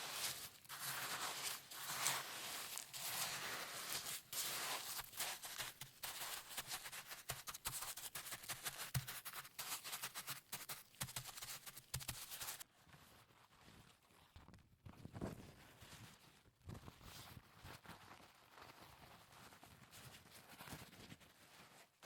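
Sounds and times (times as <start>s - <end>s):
salt crust crunching and scraping: 0.0s - 12.6s.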